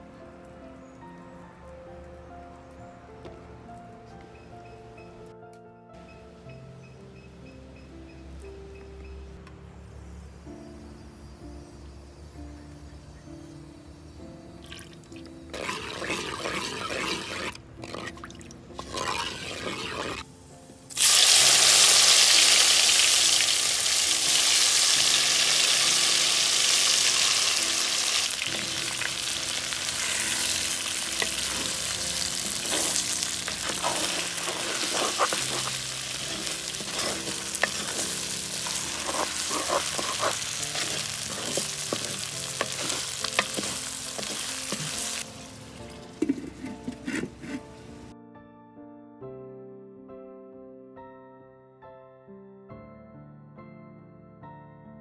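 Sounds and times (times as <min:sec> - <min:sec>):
okra sizzling in hot oil: 0:15.5 - 0:18.1, 0:18.8 - 0:20.2, 0:20.9 - 0:47.6
wooden spoon scraping a pot: 0:15.5 - 0:18.1, 0:18.8 - 0:20.2, 0:29.8 - 0:45.2, 0:46.1 - 0:48.1.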